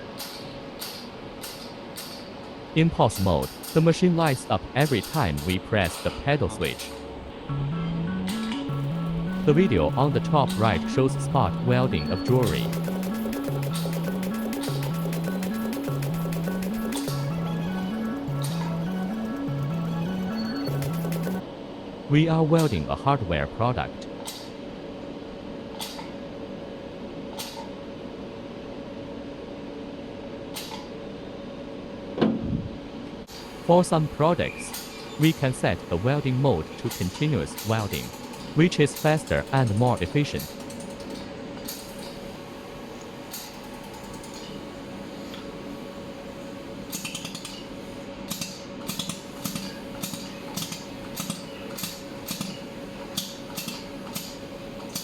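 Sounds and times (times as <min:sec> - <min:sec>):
laser welder humming: 0:07.3 - 0:21.4.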